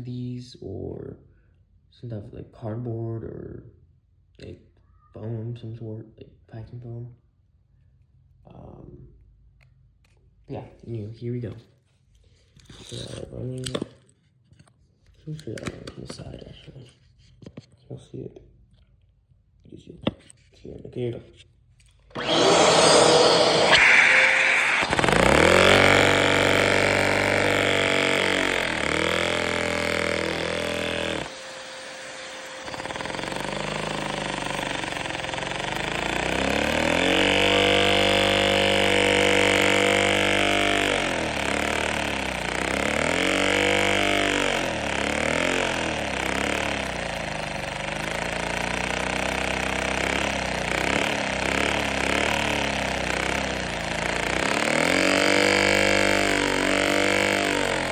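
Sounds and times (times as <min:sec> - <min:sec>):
small two-stroke engine running: 0:22.1 - 0:57.9.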